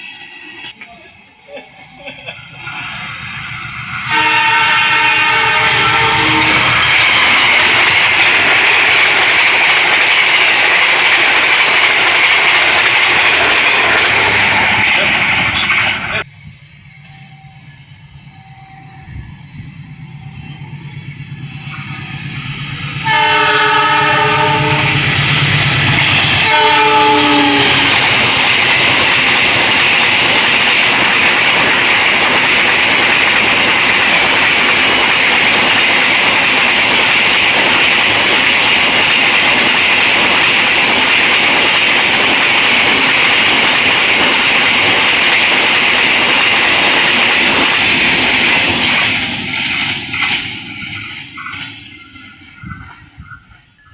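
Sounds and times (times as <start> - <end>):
train wheels clattering: 2.0 - 16.2, 21.7 - 53.9
locomotive horn blasts: 4.0 - 7.4, 23.0 - 25.7, 26.3 - 28.4.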